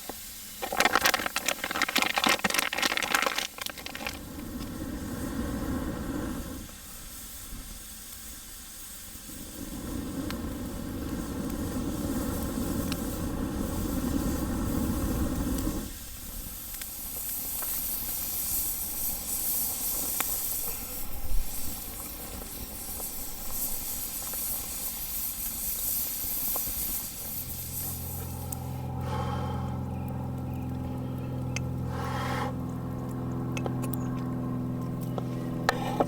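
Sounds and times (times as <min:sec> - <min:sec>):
wood fire hissing and popping: 0:00.0 - 0:36.0
low steady hum: 0:26.1 - 0:36.0
heavy low rumble: 0:26.8 - 0:36.0.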